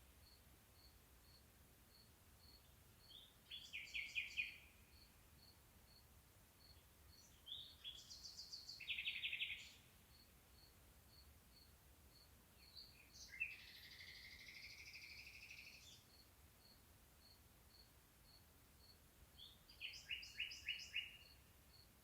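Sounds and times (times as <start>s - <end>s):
faint high chirp: 0.2s - 22.0s
birds singing trills: 2.5s - 5.1s, 6.7s - 9.9s, 12.6s - 16.2s, 19.4s - 21.4s.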